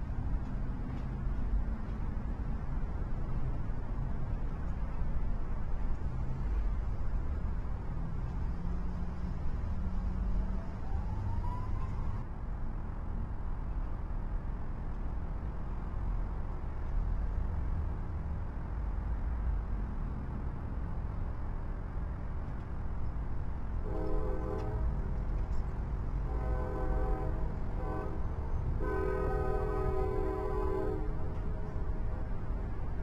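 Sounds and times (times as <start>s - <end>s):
low rumble of trains: 0.0s - 33.0s
multi-tone locomotive horn: 23.8s - 25.1s, 26.2s - 32.3s.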